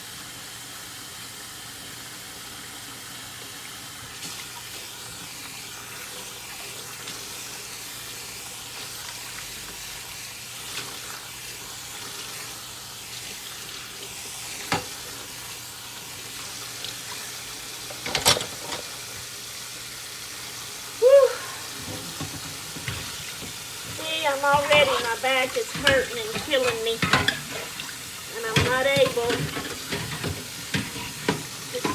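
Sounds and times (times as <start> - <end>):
tap water running into sink: 2.1 - 31.9
dishes clinking: 17.9 - 19.0, 21.8 - 31.9.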